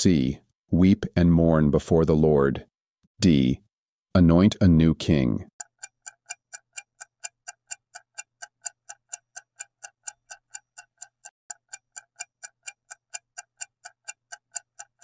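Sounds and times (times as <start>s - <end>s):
clock-like ticking: 4.8s - 15.0s.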